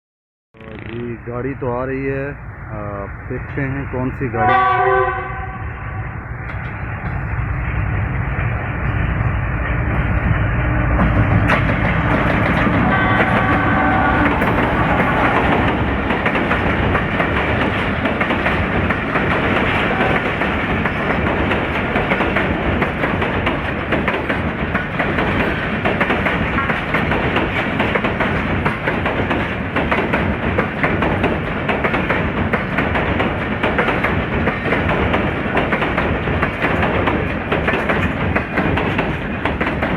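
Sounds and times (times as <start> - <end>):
train wheels clattering over rails: 6.4 - 39.9.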